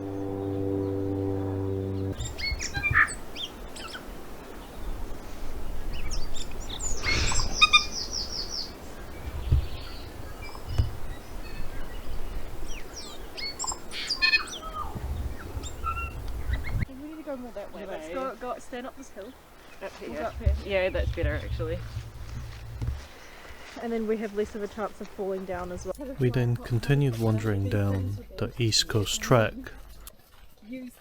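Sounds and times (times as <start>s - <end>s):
wild birds chirping: 0.0s - 18.0s, 18.9s - 26.1s
low rumbles on microphone: 20.3s - 23.1s.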